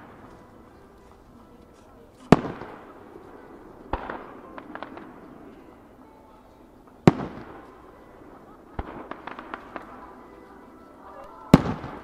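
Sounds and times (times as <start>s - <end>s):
small crackling pops: 0.0s - 5.6s
firework shells bursting: 0.0s - 6.2s, 6.8s - 10.3s.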